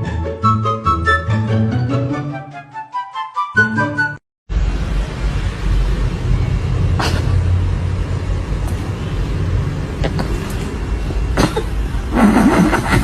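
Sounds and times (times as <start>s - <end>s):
steady low rumble: 4.5s - 12.2s.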